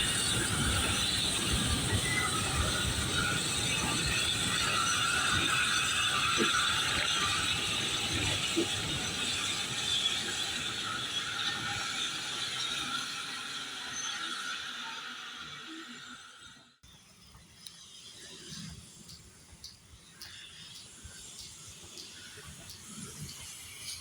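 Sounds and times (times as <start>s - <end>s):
goods train wagons rattling on rails: 0.0s - 14.8s.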